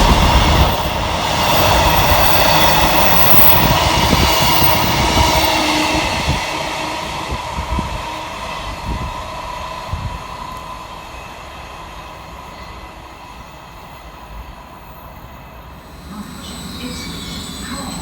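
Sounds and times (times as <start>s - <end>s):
train running: 0.0s - 18.0s
steady whine: 15.8s - 18.0s.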